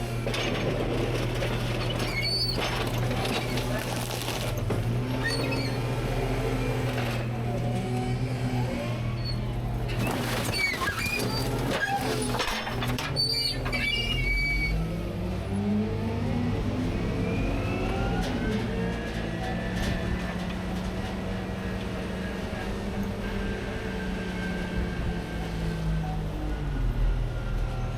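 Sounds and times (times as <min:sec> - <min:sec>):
trash crunching and knocking: 0:00.0 - 0:08.1, 0:09.4 - 0:14.3
hydraulic packer working: 0:00.0 - 0:25.9
garbage truck engine running: 0:00.0 - 0:27.8
high metal squeals: 0:01.8 - 0:03.9, 0:05.2 - 0:06.0, 0:09.1 - 0:14.9.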